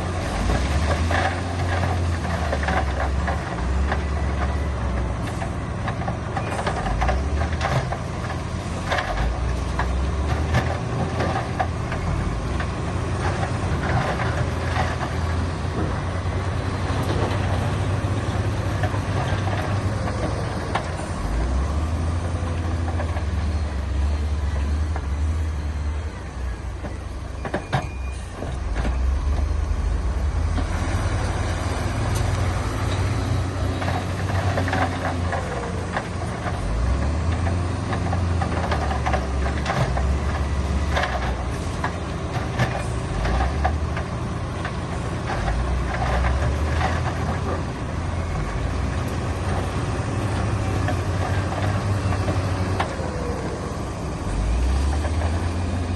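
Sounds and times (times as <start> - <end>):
diesel engine rumbling: 0.0 - 55.9.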